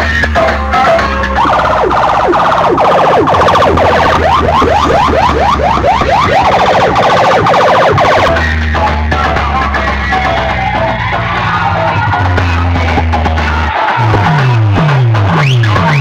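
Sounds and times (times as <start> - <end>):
bass-heavy music: 0.0 - 16.0
siren sound effect over loudspeakers: 1.3 - 8.5.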